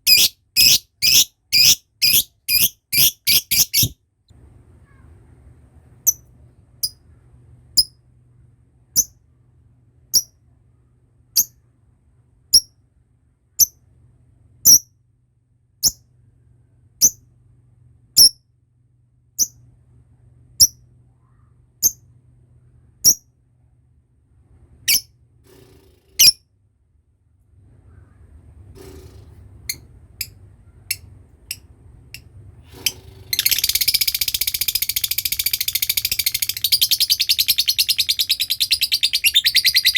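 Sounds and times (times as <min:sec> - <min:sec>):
lovebird chirping and trilling: 0:00.1 - 0:04.0, 0:33.3 - 0:39.9.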